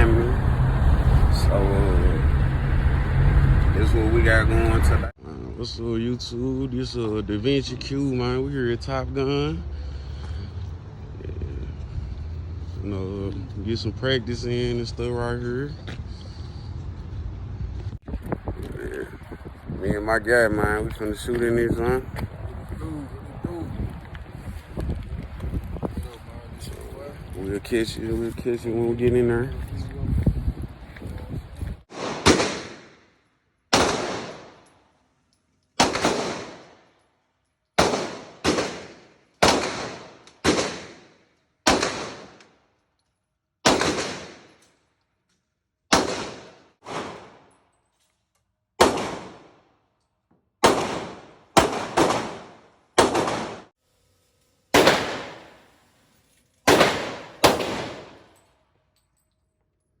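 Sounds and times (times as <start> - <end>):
pistol shots: 31.9 - 33.0, 33.7 - 34.6, 35.8 - 36.8, 37.8 - 42.5, 43.6 - 44.6, 45.9 - 47.5, 48.8 - 49.6, 50.6 - 53.7, 54.8 - 55.6, 56.7 - 58.3.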